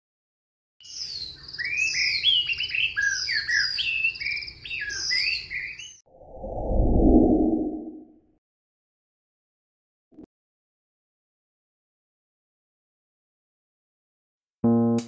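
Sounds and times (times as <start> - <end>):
low rushing noise: 6.2 - 8.1.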